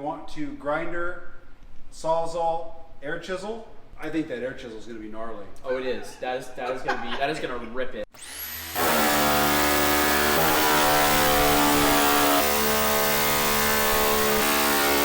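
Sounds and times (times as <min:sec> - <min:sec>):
air chisel hammering sheet steel: 0:08.7 - 0:15.0.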